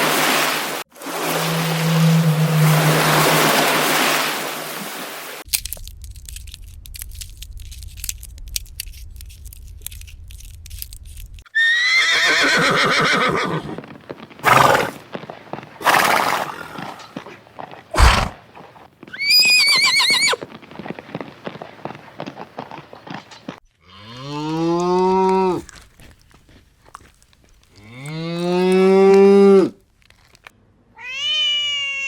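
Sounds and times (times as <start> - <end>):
low hum: 1.2 - 3.8
horse whinnying: 11.5 - 15.0, 15.8 - 17.3, 17.9 - 18.4, 19.1 - 20.4.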